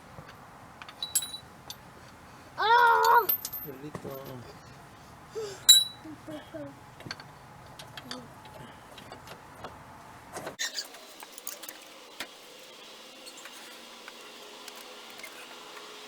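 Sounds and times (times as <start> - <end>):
metallic clicks of tools and bolts: 0.8 - 1.8, 5.7 - 6.0.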